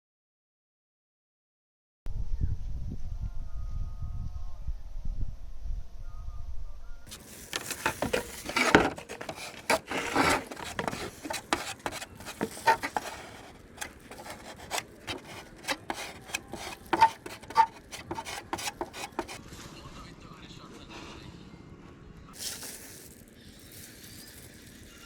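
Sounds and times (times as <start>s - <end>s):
hand rubbing on a body panel: 7.1s - 19.4s.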